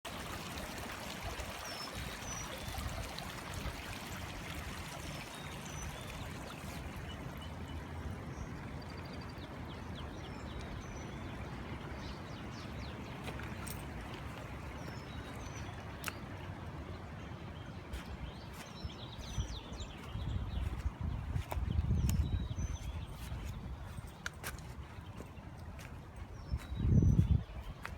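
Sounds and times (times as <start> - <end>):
floodwater rushing: 0.1 - 8.8, 9.5 - 21.6.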